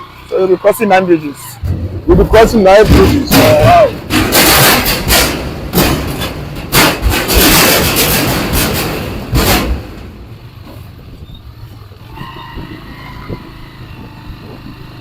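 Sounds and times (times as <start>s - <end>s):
motorbike engine running: 10.3s - 15.0s
wind buffeting microphone: 10.3s - 15.0s.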